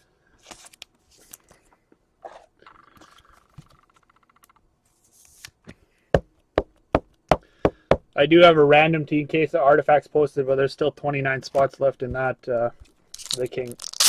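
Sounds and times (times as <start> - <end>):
cards and wrappers rustling: 13.2 - 14.0.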